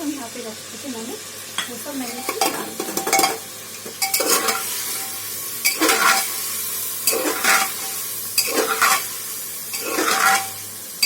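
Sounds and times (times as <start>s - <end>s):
chicken sizzling in hot oil: 0.0s - 11.0s
spoon scraping pot: 2.1s - 6.4s, 7.0s - 10.6s.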